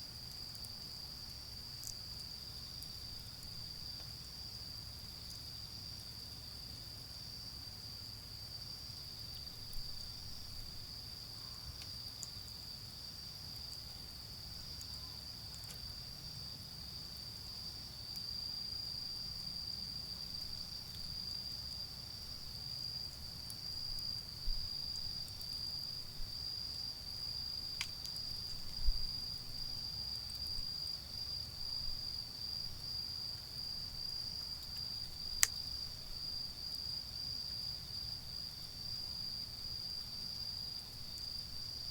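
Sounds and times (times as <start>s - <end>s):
crickets trilling: 0.0s - 41.9s
charcoal fire popping: 27.3s - 29.1s, 34.4s - 36.0s.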